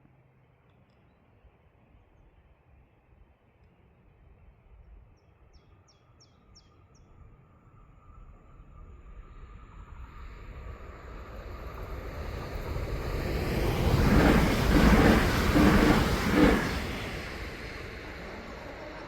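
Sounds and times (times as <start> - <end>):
train passing: 7.7 - 19.0.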